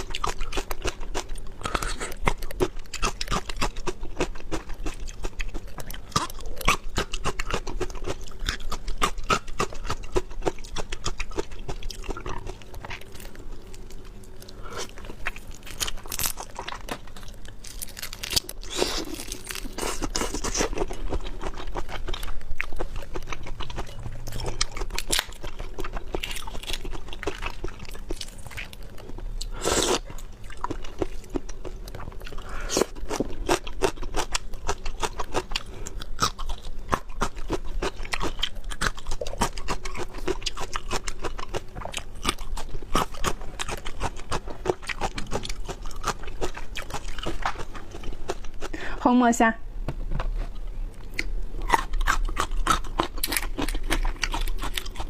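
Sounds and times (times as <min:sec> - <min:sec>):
person chewing food: 0:00.0 - 0:48.9, 0:50.2 - 0:55.0
crisp crunching bites: 0:14.8 - 0:31.7, 0:51.1 - 0:55.0.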